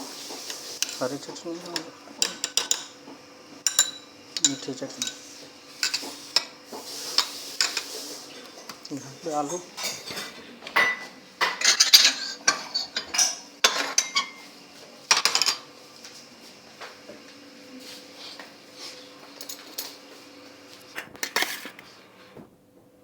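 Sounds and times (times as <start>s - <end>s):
spoons clinking against dishes: 0.5s - 1.0s, 1.6s - 3.0s, 3.6s - 8.0s, 8.7s - 14.4s, 15.1s - 15.7s.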